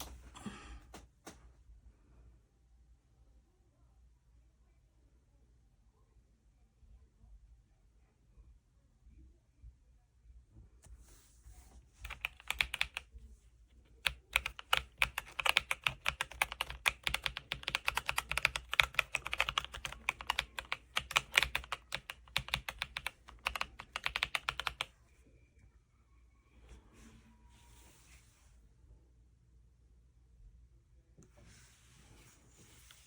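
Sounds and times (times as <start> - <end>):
mechanical keyboard typing: 12.0 - 13.1, 14.0 - 24.9.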